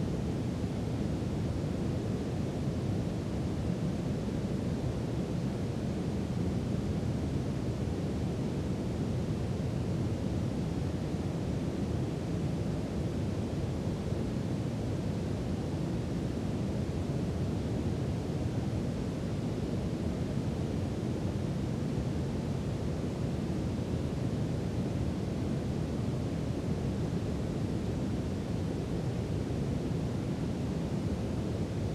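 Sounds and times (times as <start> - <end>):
brown noise hiss: 0.0 - 31.9.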